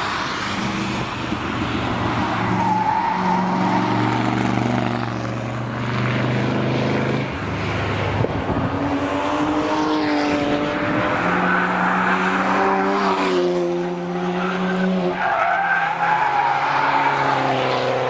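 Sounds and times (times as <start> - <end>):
car engine passing by: 3.3 - 15.5.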